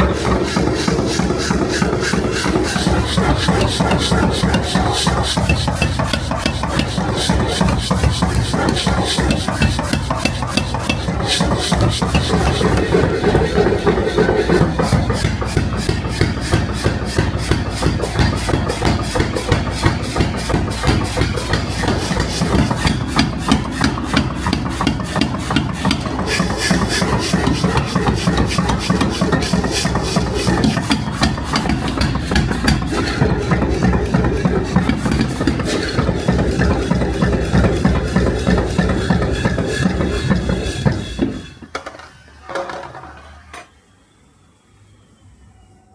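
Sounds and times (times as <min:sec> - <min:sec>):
metal rasping on metal: 0:00.0 - 0:41.7.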